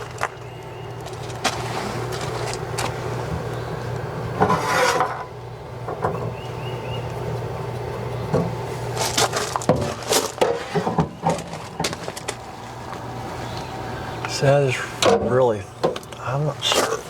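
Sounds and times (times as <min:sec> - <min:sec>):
steady low hum: 0:00.0 - 0:17.0
rustling: 0:01.0 - 0:03.3, 0:07.1 - 0:13.6.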